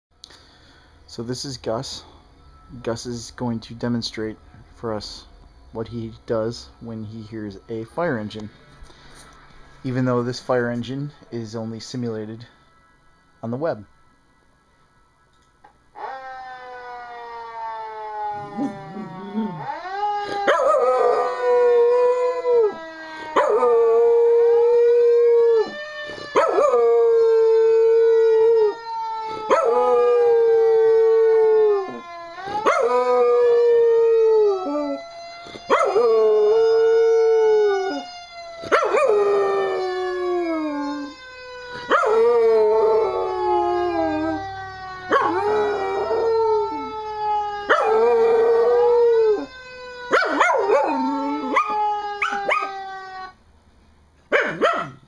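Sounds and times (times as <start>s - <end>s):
fire engine siren wailing: 0.2s - 53.8s
dog howling: 35.7s - 38.0s, 38.7s - 41.1s, 41.9s - 47.0s, 50.1s - 53.3s.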